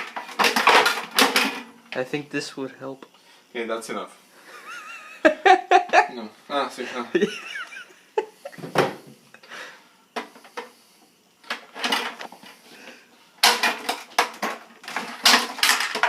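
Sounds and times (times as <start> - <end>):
plastic parts clicking and clattering: 0.0 - 1.7, 11.4 - 12.3, 13.4 - 16.0.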